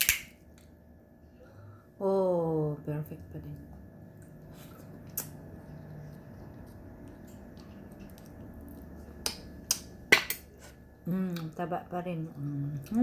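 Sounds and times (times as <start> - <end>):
crab shell cracking: 0.0 - 0.4.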